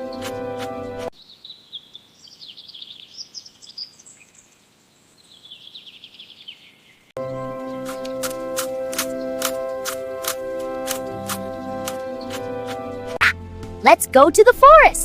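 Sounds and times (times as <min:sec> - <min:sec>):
background music: 0:00.0 - 0:01.1, 0:07.2 - 0:15.0
small birds chirping and trilling: 0:01.2 - 0:08.3.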